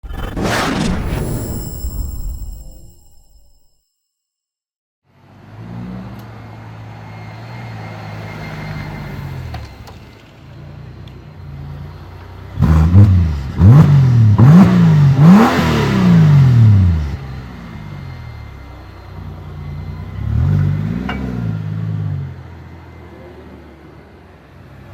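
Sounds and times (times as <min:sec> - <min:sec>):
car engine revving: 0:11.4 - 0:23.6.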